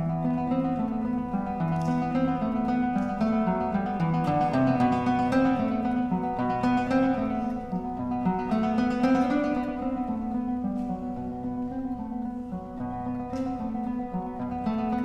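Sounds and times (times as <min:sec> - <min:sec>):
plucked acoustic guitar melody: 0:00.0 - 0:15.0.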